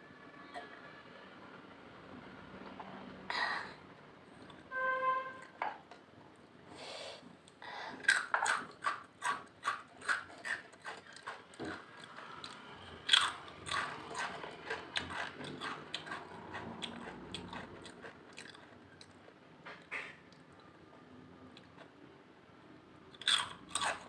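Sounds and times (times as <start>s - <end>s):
potato chips crunching: 8.0s - 19.1s, 23.2s - 24.0s.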